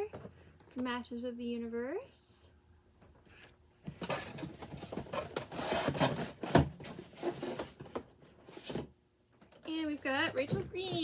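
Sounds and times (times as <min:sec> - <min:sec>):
cardboard boxes scraping together: 0:04.0 - 0:08.9.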